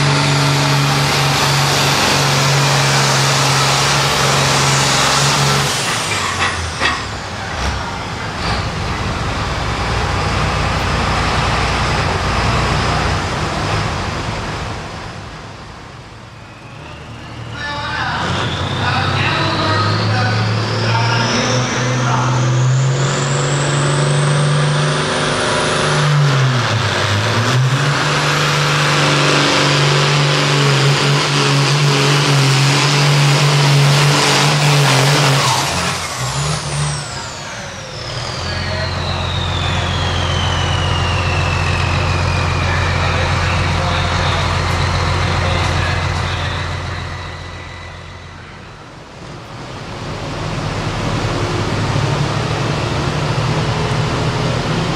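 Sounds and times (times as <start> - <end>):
tractor diesel engine under load: 0.0 - 54.9
turbo whistle: 38.4 - 43.2.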